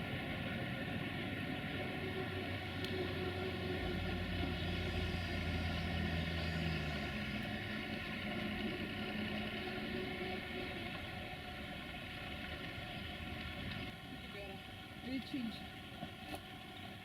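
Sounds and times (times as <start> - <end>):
locomotive low hum: 0.0 - 17.0
higher tone: 1.8 - 11.0.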